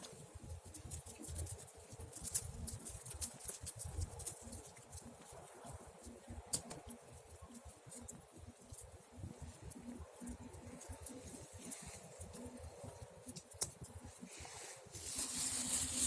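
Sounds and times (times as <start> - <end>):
campfire crackling: 0.0 - 16.0
burning wood snapping and popping: 6.4 - 6.9, 13.3 - 14.0.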